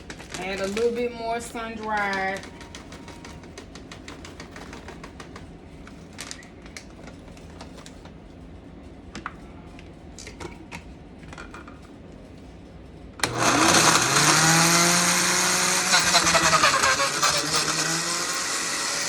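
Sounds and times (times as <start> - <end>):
utensils clicking and tapping: 0.0 - 7.7
electric blender whining: 13.2 - 19.0.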